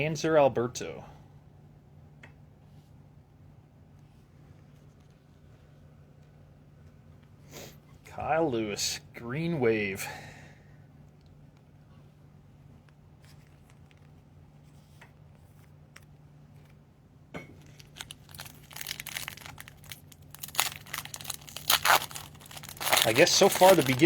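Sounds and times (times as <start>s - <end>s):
card pack wrapper tearing: 17.6s - 24.0s
cards clicking: 22.8s - 24.0s.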